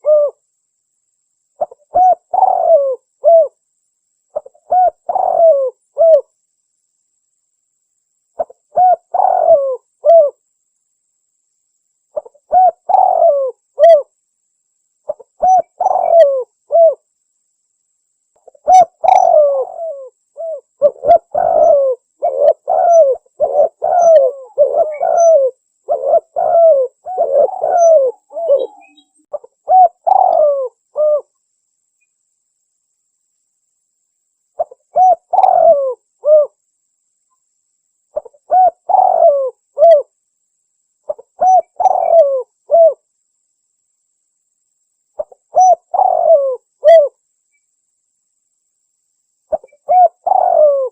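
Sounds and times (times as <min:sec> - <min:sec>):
dove cooing: 0:00.0 - 0:00.4, 0:01.6 - 0:03.6, 0:04.4 - 0:06.3, 0:08.4 - 0:10.4, 0:12.2 - 0:14.1, 0:15.1 - 0:17.0, 0:18.4 - 0:31.3, 0:34.6 - 0:36.6, 0:38.2 - 0:40.1, 0:41.1 - 0:43.0, 0:45.2 - 0:47.2, 0:49.5 - 0:50.9.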